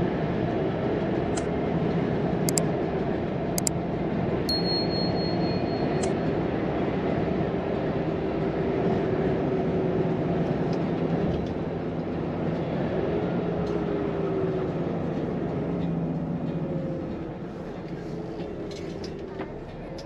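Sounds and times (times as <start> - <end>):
road noise: 0.0 - 20.0.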